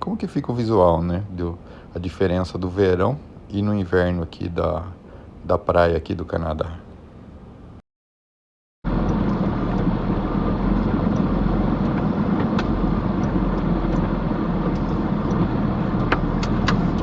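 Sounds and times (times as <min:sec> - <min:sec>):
truck engine rumbling: 0:08.9 - 0:17.0.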